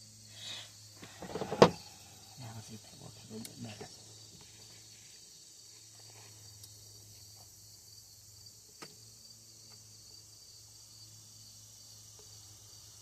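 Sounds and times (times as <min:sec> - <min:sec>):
high hiss: 0:00.0 - 0:08.2.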